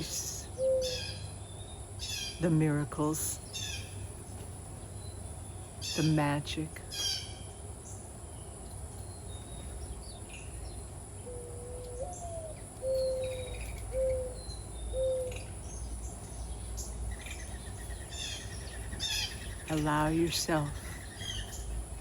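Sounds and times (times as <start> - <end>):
bird cooing: 0.0 - 1.3, 11.2 - 15.6
insect hum: 0.0 - 22.0
small birds chirping: 0.0 - 22.0.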